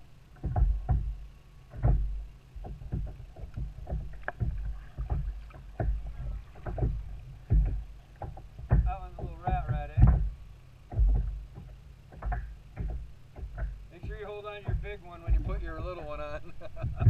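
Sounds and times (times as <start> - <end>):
low rumble: 0.0 - 17.0
knocks on a kayak: 0.4 - 16.2, 16.8 - 17.0.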